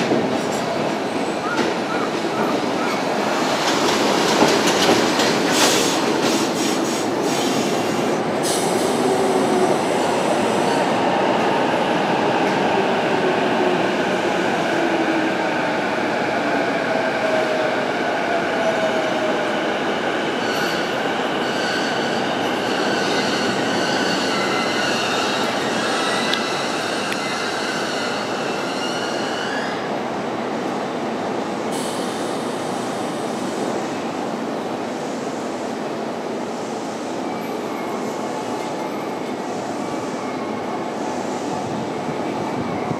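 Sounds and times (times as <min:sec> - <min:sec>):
tram wheels squealing: 0:20.3 - 0:29.9.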